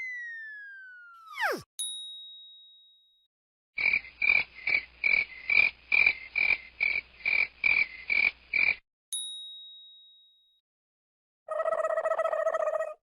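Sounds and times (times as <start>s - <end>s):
bell-like ding: 1.8s - 3.2s, 9.2s - 10.6s.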